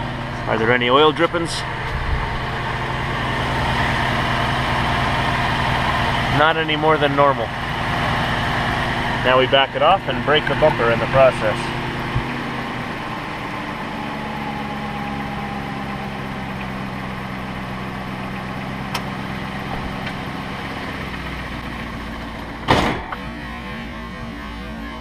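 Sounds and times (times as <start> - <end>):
car engine idling: 0.0 - 25.0
loud thump: 22.6 - 23.2.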